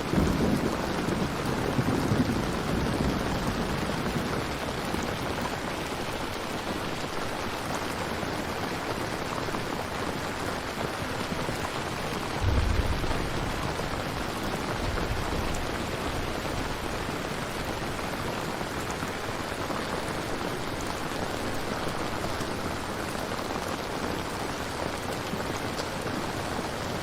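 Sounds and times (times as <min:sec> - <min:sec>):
steady rain falling: 0:00.0 - 0:27.0
low rumble: 0:12.4 - 0:15.7.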